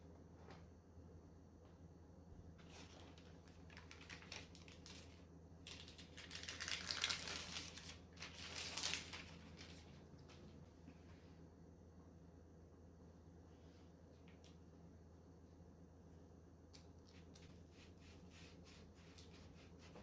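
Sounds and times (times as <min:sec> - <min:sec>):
rustling: 0:05.8 - 0:10.5.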